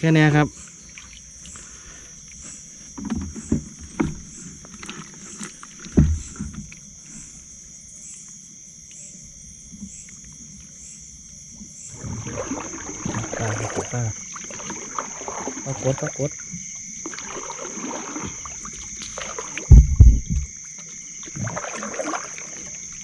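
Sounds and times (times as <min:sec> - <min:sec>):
high drone of insects: 0:00.0 - 0:23.0
water splashing: 0:00.3 - 0:06.9, 0:11.5 - 0:23.0
knocks against a small boat: 0:03.0 - 0:05.1, 0:05.8 - 0:06.8, 0:18.1 - 0:20.6.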